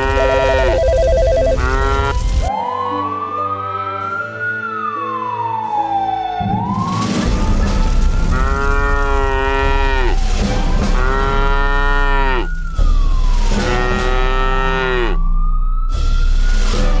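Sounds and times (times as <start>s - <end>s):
cow mooing: 0.0s - 0.8s, 1.6s - 2.2s, 8.3s - 10.2s, 11.0s - 12.5s, 13.6s - 15.2s.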